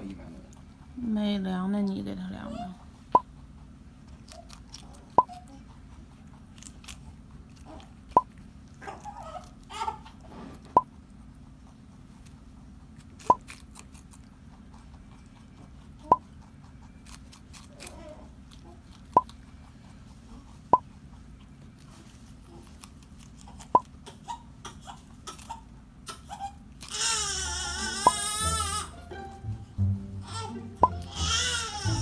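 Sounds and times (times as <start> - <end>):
rabbit chewing: 0.0 - 32.0
low steady hum: 27.4 - 32.0.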